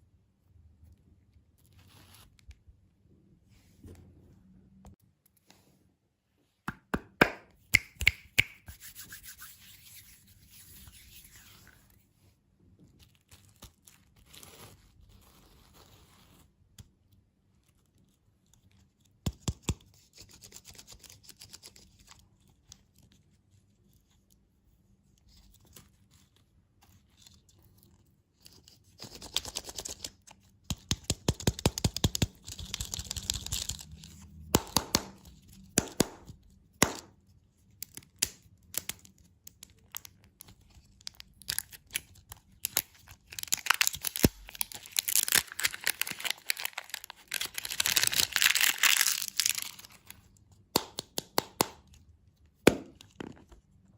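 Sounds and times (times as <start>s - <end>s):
plastic wrappers crinkling: 40.8s - 50.3s.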